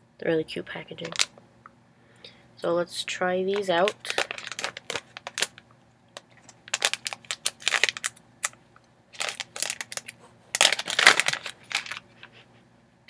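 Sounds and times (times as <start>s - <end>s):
candy packet crinkling: 0.9s - 1.4s, 3.5s - 12.3s.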